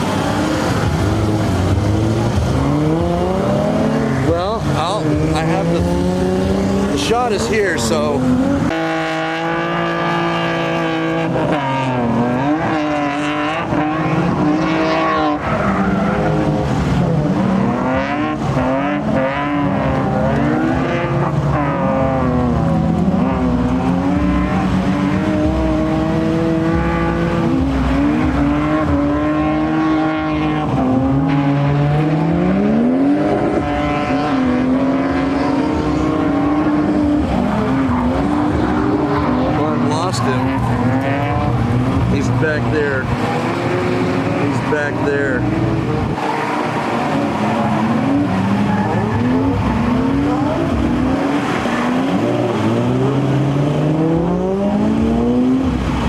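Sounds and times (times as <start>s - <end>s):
car engines revving hard: 0.0s - 56.0s
tyre squeal: 46.2s - 50.6s.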